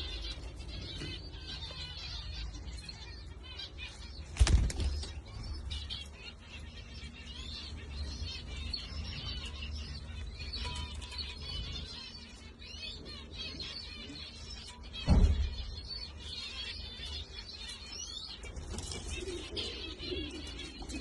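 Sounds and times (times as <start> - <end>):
birds chirping: 0.0 - 21.0
loud low thump: 15.0 - 15.7.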